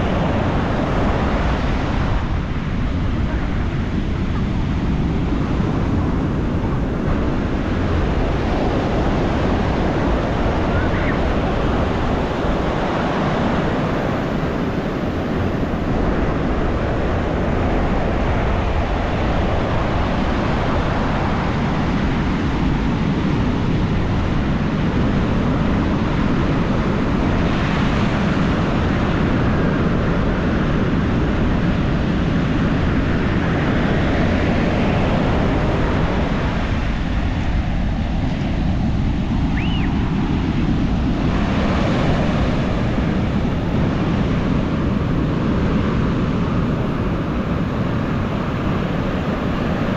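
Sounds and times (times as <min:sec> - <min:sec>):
ocean surf breaking: 0:00.0 - 0:49.9
short high chirp: 0:39.6 - 0:39.9.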